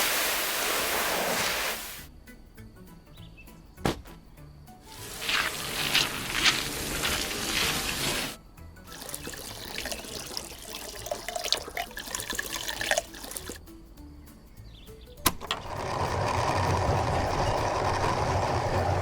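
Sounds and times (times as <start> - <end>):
water pouring and trickling: 4.9 - 13.6.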